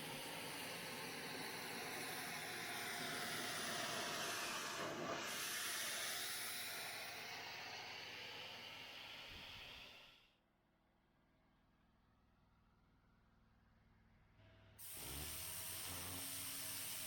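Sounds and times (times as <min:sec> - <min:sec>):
pressure washer spraying water: 0:14.8 - 0:17.0.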